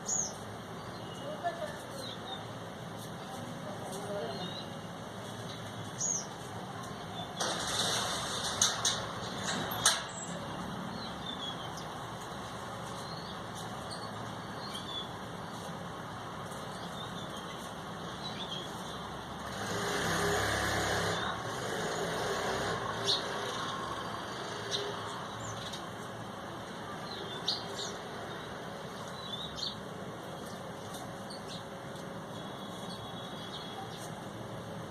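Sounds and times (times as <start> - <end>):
small birds chirping: 0.0 - 7.5, 9.2 - 34.8
background traffic noise: 0.0 - 34.9
vehicle passing: 19.4 - 25.5.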